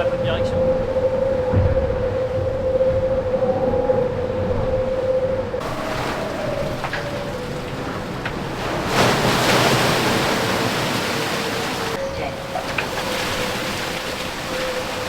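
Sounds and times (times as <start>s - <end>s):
wind: 0.0s - 15.0s
water rushing along hull: 5.6s - 15.0s.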